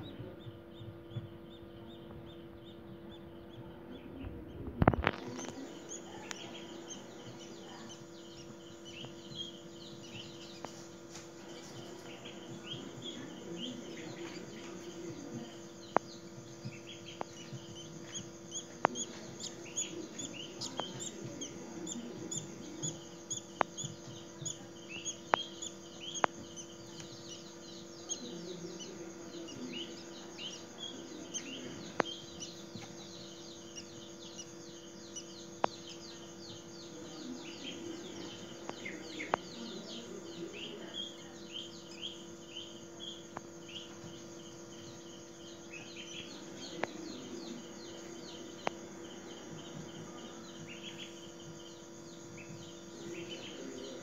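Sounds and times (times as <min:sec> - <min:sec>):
small birds chirping: 0:00.0 - 0:54.0
sharp clicks: 0:23.3 - 0:27.4.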